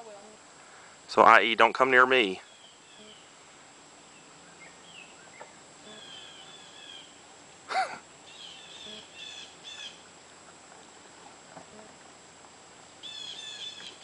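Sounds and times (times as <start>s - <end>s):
songbirds chirping and singing: 4.2s - 7.2s, 8.3s - 10.1s, 13.0s - 14.0s.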